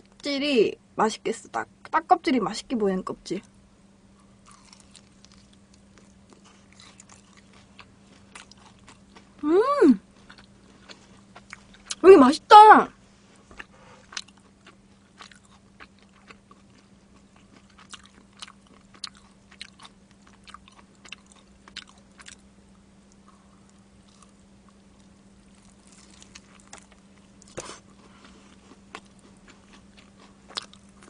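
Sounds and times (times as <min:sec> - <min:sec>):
chewing crispy fried chicken: 0:04.2 - 0:12.0, 0:13.5 - 0:31.0.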